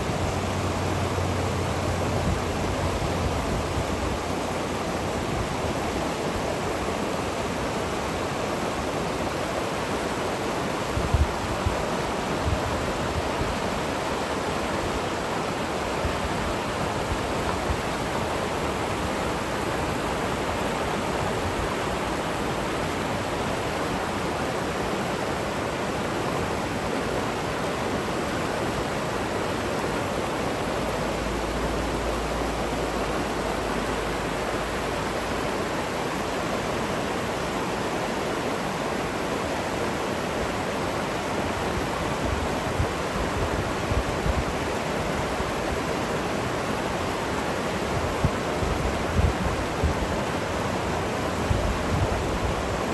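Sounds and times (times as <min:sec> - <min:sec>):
river water rushing: 0:00.0 - 0:52.9.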